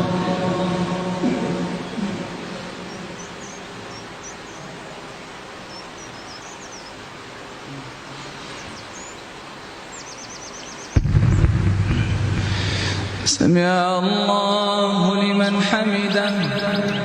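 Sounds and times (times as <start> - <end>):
steady background hiss: 0.0 - 17.0
small birds chirping: 1.7 - 11.1
bird trill: 2.7 - 4.7, 5.6 - 7.0, 9.8 - 11.0.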